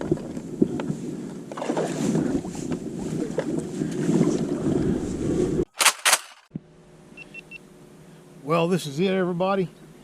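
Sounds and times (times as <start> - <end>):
water and wind rumble: 0.0 - 5.7.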